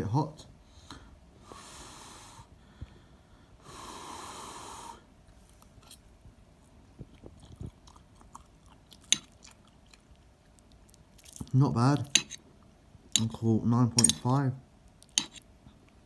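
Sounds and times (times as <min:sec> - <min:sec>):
quiet chewing with clicks: 0:05.3 - 0:13.4, 0:14.8 - 0:16.0.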